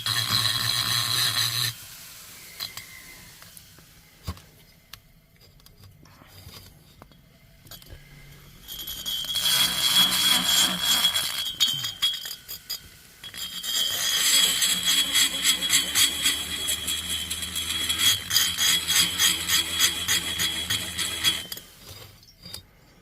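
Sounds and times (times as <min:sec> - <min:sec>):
rotary tool grinding metal: 0:00.0 - 0:01.8, 0:08.6 - 0:22.6.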